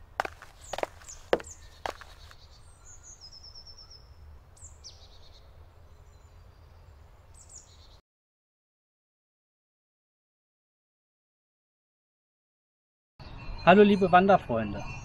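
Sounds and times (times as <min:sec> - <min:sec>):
songbirds chirping: 0:00.0 - 0:08.0, 0:13.2 - 0:15.0.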